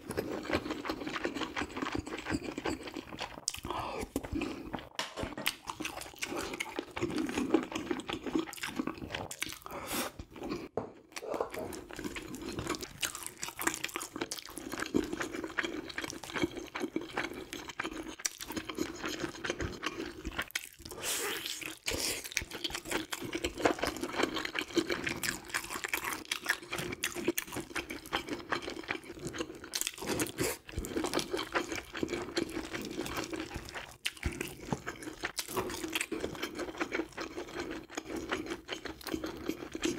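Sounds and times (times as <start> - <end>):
chewing and crunching food: 0.0 - 39.9.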